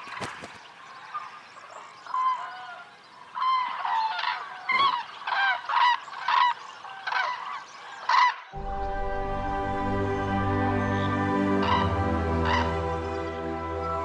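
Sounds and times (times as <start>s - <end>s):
cranes honking calls: 3.4s - 14.0s
music: 8.6s - 14.0s.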